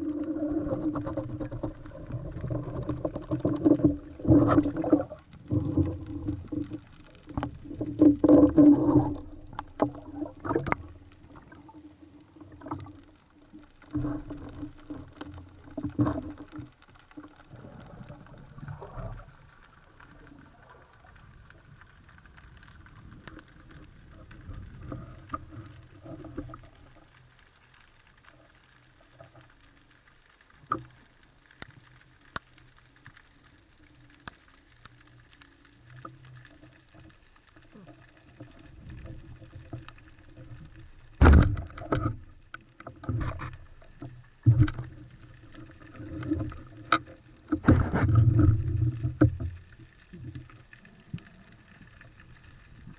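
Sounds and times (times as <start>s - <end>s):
underwater rush of water: 0.0s - 52.9s
loud low underwater thumps: 41.2s - 41.8s.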